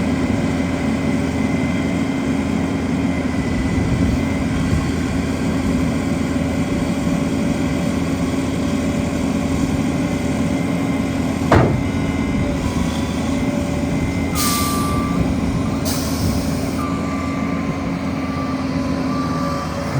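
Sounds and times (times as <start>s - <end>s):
diesel engine running: 0.0s - 19.9s
sharp clunk: 11.5s - 12.4s.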